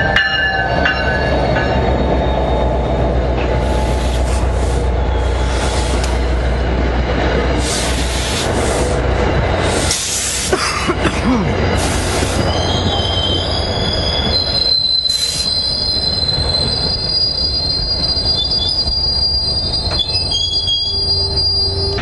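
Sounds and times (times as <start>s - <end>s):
train rumbling on rails: 0.0s - 22.0s
train wheels squealing: 0.6s - 6.8s, 11.7s - 22.0s.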